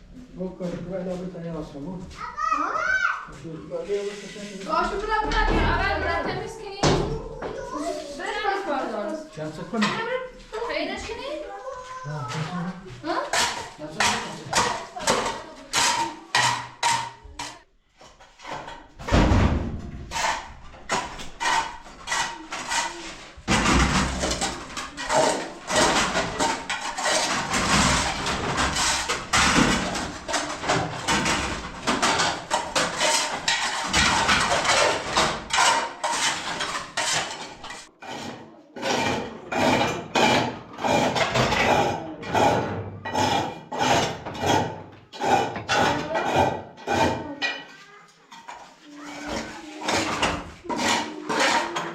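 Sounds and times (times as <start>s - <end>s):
scrubbing on a hard surface: 3.4s - 5.2s, 20.1s - 47.2s, 48.3s - 51.9s.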